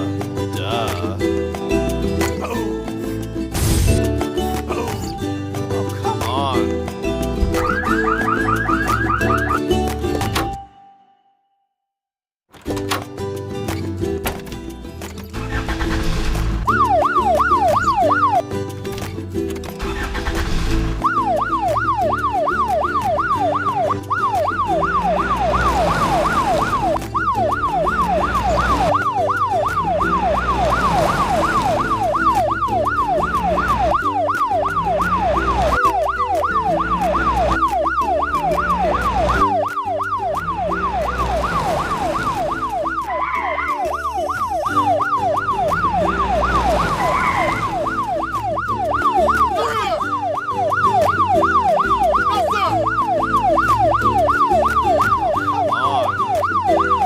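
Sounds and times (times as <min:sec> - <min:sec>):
looping background music: 0:00.0 - 0:10.8, 0:12.5 - 0:57.0
electronic yelp siren: 0:07.5 - 0:09.8, 0:16.7 - 0:18.4, 0:21.0 - 0:57.0.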